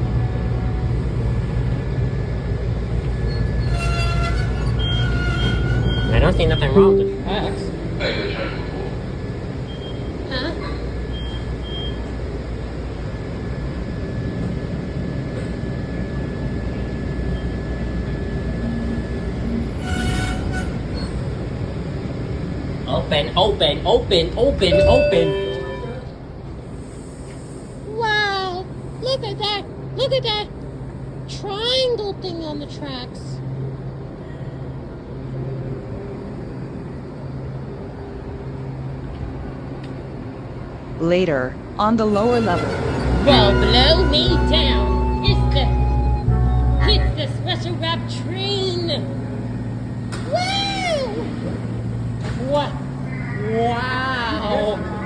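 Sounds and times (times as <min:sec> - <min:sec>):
low rumble of metro station: 0:00.0 - 0:55.0
faint high whine: 0:06.2 - 0:08.0, 0:24.6 - 0:26.2
low electric drone: 0:06.7 - 0:08.3, 0:42.1 - 0:50.4.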